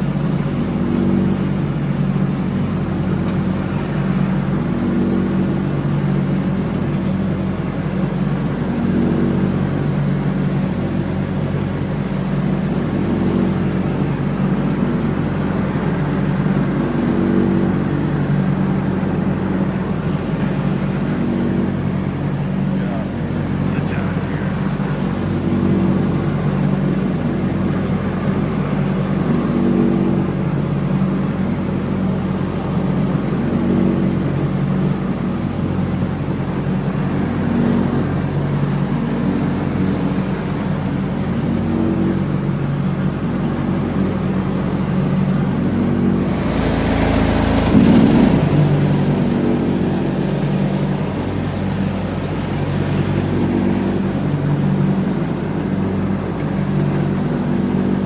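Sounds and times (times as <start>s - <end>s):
riding lawn mower engine hum: 0.0s - 58.0s
rush of noise: 45.2s - 58.0s.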